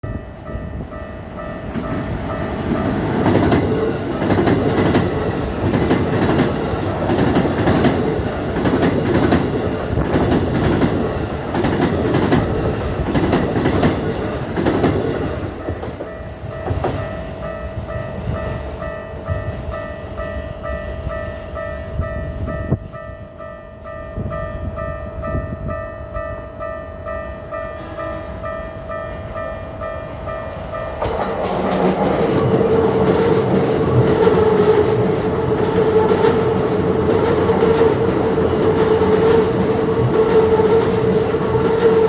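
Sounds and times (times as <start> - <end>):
train wheels clattering: 1.7 - 17.2, 30.3 - 42.0.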